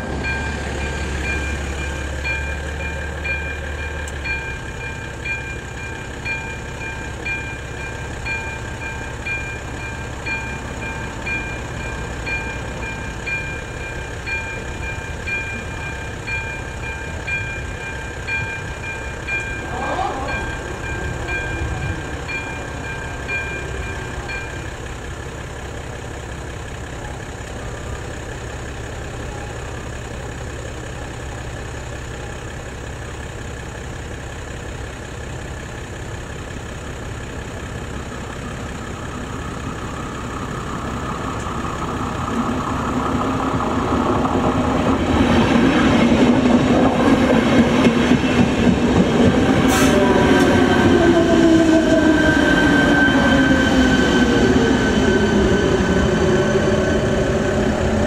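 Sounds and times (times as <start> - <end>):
crossing warning bell tone: 0.0 - 58.0
electric train running: 0.0 - 58.0
falling whine: 38.9 - 58.0.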